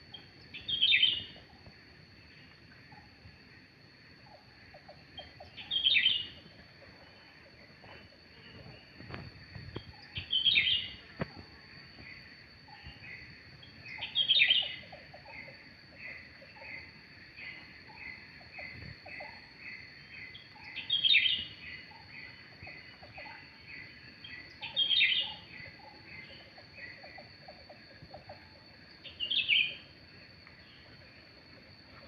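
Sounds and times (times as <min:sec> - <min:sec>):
constant high whine: 0:00.0 - 0:32.0
bird chirping: 0:00.1 - 0:01.5, 0:04.3 - 0:07.6, 0:08.4 - 0:11.1, 0:12.0 - 0:29.9.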